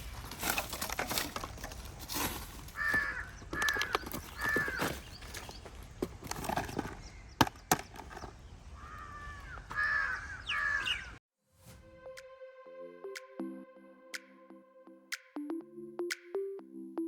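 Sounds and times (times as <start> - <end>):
bird calls: 0.0 - 11.2
electronic background music: 11.8 - 17.0.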